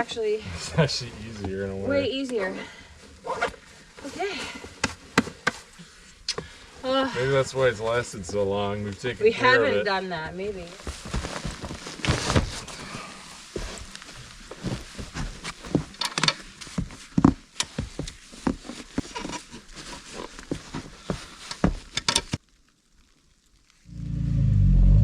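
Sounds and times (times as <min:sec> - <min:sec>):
camp gear knocking and rustling: 0:03.2 - 0:05.8, 0:10.8 - 0:22.4.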